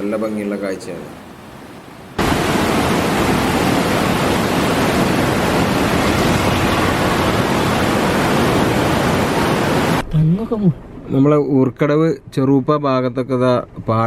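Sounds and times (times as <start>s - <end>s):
floodwater roaring through shutters: 0.0s - 10.0s.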